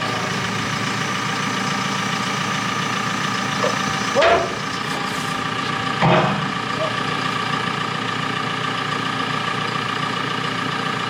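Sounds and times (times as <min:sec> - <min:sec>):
machine engine idling: 0:00.0 - 0:11.0.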